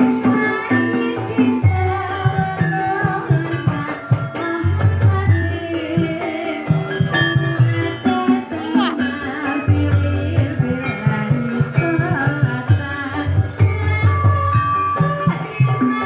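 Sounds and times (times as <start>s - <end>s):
hand drums beating: 0.0s - 16.0s
ensemble melodic lines: 6.2s - 13.9s.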